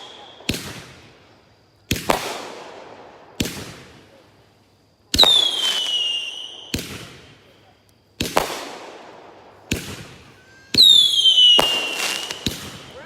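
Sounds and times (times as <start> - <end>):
firework falling whistle: 0.0 - 0.8, 5.2 - 7.1, 9.8 - 13.0
fireworks bangs with crackle: 0.0 - 13.0.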